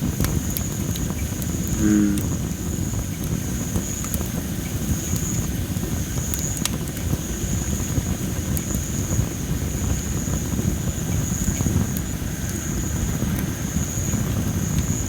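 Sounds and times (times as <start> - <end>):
high-pitched hum: 1.8 - 2.4.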